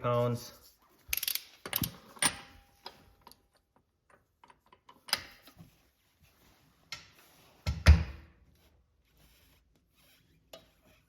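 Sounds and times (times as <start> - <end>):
torque wrench clicks: 1.1 - 1.5.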